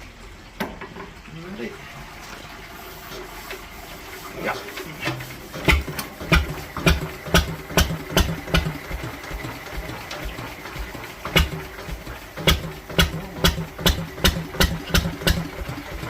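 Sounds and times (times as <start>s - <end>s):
diesel engine exhaust beats: 5.6s - 16.0s.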